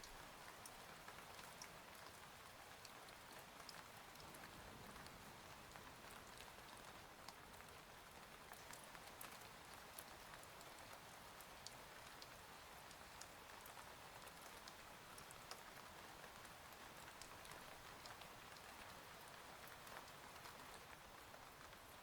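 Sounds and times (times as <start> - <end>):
rain patter: 0.0 - 22.0.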